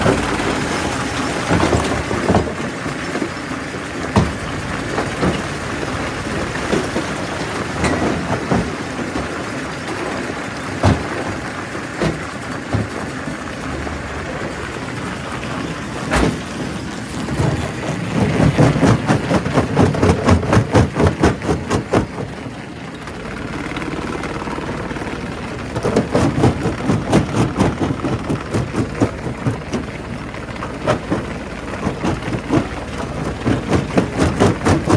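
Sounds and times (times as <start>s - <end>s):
rapid pounding: 0.0s - 22.6s, 23.2s - 34.9s
rock crusher running: 0.0s - 34.9s
rocks knocking and cracking: 25.6s - 34.9s.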